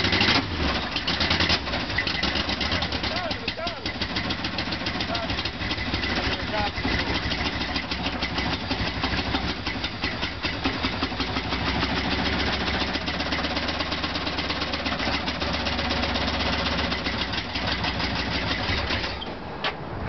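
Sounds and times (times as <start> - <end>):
car engine running: 0.0 - 19.3.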